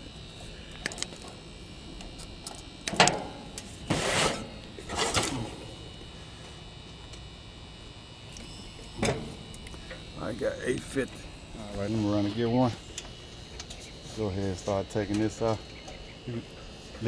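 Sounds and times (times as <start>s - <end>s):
scraping rustle: 3.8s - 5.5s.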